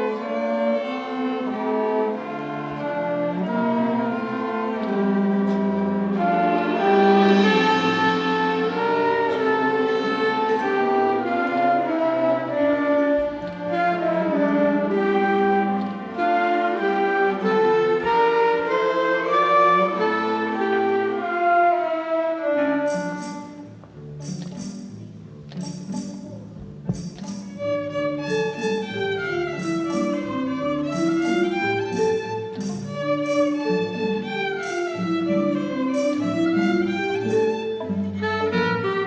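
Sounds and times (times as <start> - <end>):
orchestral strings melody: 0.0 - 39.0
bright percussive strokes: 5.3 - 12.2, 22.9 - 38.0.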